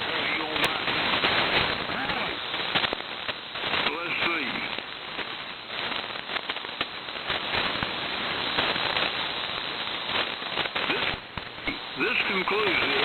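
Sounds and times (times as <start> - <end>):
lightning static crackles: 0.0 - 13.0
radio static rush: 0.0 - 13.0.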